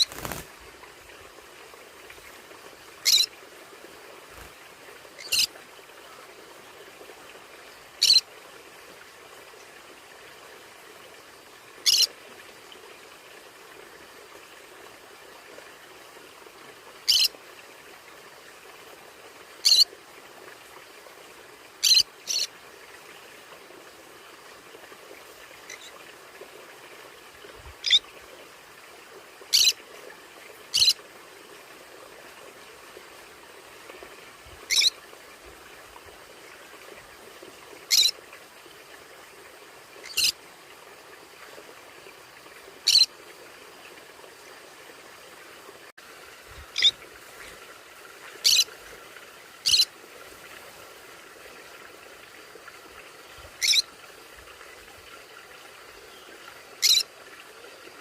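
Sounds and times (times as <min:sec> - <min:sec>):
conures calling: 0:00.0 - 0:00.5, 0:03.0 - 0:03.3, 0:05.2 - 0:05.5, 0:08.0 - 0:08.2, 0:11.9 - 0:12.1, 0:17.1 - 0:17.3, 0:27.8 - 0:28.0, 0:30.7 - 0:31.0, 0:34.7 - 0:34.9, 0:37.9 - 0:38.1, 0:40.0 - 0:40.4, 0:42.9 - 0:43.1, 0:46.8 - 0:47.0, 0:48.4 - 0:48.7, 0:49.6 - 0:49.9, 0:53.6 - 0:53.8, 0:56.8 - 0:57.0
faint steady hiss: 0:00.0 - 0:58.0.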